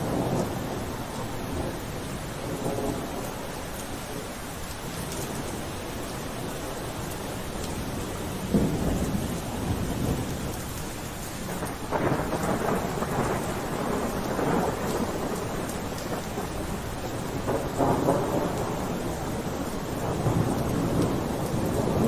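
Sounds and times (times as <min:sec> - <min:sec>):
thunder rumbling: 0:00.0 - 0:03.4, 0:07.9 - 0:10.7, 0:11.4 - 0:22.0
steady rain falling: 0:00.0 - 0:22.0.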